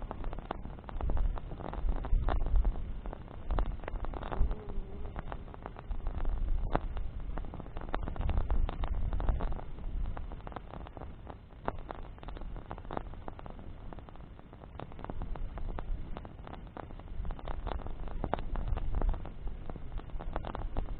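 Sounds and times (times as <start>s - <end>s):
low rumble: 0.0s - 10.5s
campfire crackling: 0.0s - 20.9s
sharp fire pops: 0.0s - 20.9s.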